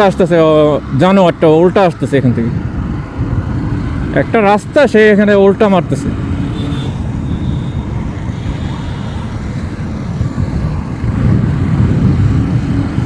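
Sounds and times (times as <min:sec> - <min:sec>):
road noise: 0:00.0 - 0:13.0
wind rushing: 0:02.2 - 0:04.9, 0:05.8 - 0:13.0.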